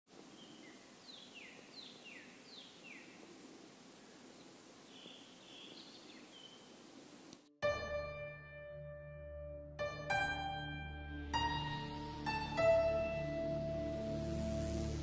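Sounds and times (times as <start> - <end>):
soft steady hiss: 0.1 - 7.5.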